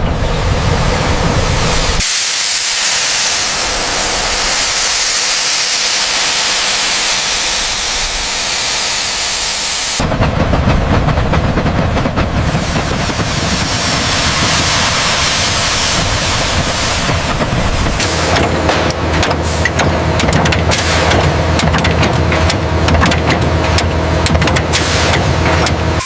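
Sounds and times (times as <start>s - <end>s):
pressurised jet hissing: 0.3s - 10.0s, 12.4s - 18.5s, 19.4s - 19.8s.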